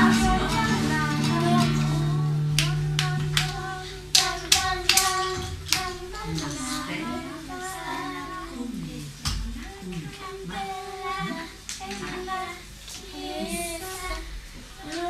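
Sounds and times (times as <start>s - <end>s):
music: 0.0s - 8.4s
children singing: 0.0s - 15.0s.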